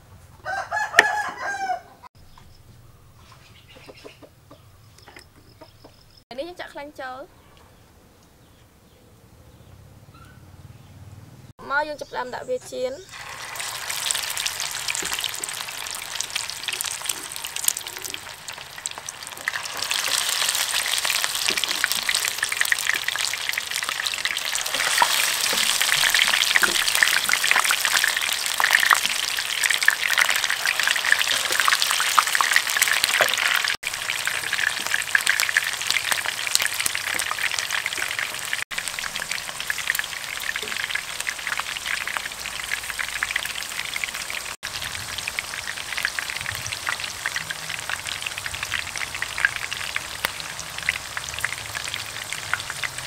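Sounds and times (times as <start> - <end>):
oil sizzling in a frying pan: 13.1 - 53.0.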